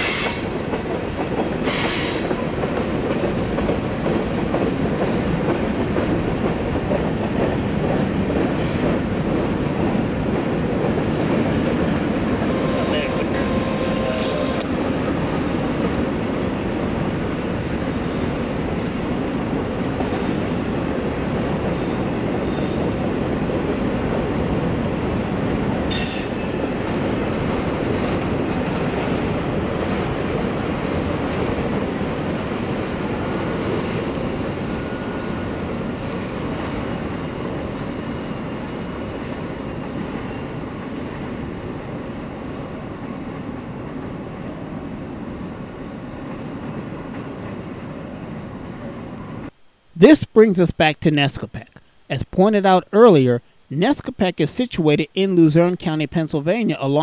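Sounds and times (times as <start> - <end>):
train wheels rumbling on rail: 0.0 - 49.4
high-pitched wheel squeals: 15.6 - 19.4, 21.8 - 23.1, 25.9 - 26.7, 28.2 - 31.0, 37.6 - 43.4.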